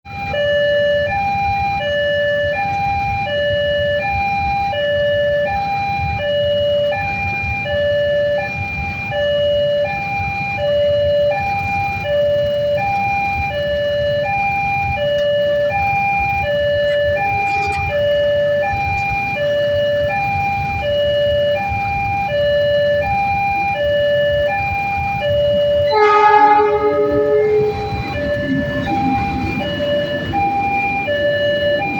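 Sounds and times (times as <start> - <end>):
two-tone electronic alarm: 0.1 - 31.9
horn-like tone: 16.8 - 18.2, 25.8 - 31.2.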